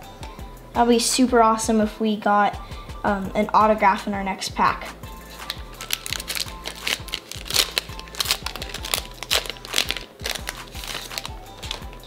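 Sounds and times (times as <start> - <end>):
background music: 0.0 - 12.0
plastic wrapper crinkling: 5.3 - 12.0.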